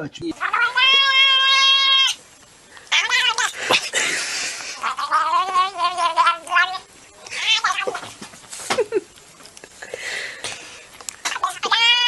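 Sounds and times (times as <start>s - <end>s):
cat yowling: 0.4s - 2.2s, 2.9s - 3.8s, 4.8s - 8.0s, 11.3s - 12.0s.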